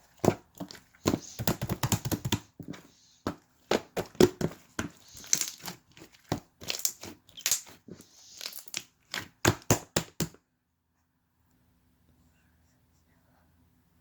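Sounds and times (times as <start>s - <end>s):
slime squished by hand: 3.7s - 10.3s.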